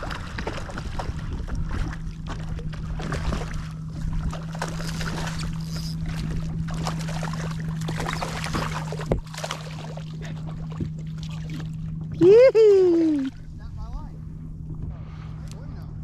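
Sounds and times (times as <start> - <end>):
water splashing and trickling: 0.0 - 13.7
steady low hum: 0.0 - 16.0.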